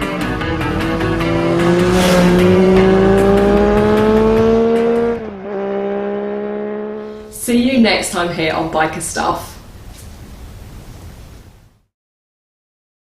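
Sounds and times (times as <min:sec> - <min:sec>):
engine accelerating: 0:00.0 - 0:07.4.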